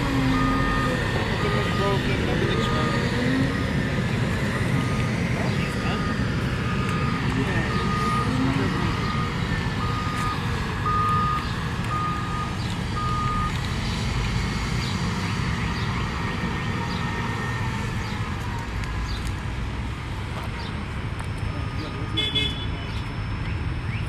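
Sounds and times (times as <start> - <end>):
reversing alarm beeping: 0.0 - 13.6, 21.2 - 24.0
diesel engine running: 0.0 - 24.0.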